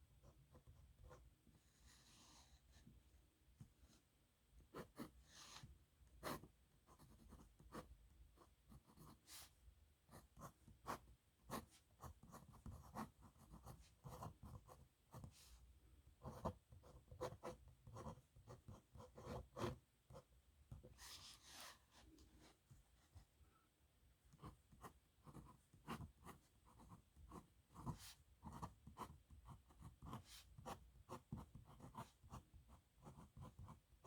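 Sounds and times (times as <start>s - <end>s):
nib pen scratching on paper: 10.1s - 15.4s, 16.2s - 20.2s, 24.4s - 33.8s.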